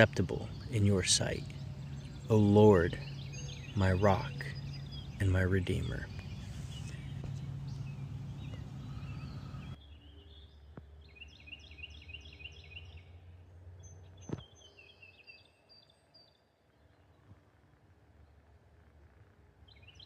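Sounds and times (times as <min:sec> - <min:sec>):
steady low hum: 0:00.0 - 0:14.8
songbird singing: 0:00.0 - 0:17.6, 0:18.2 - 0:20.0.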